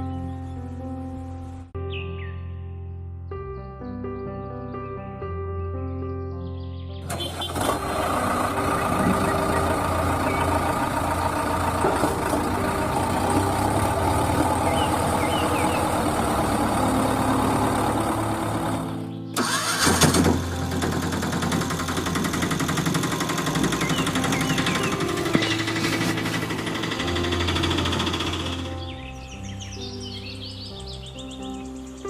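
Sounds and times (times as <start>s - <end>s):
small engine running: 7.0s - 28.9s.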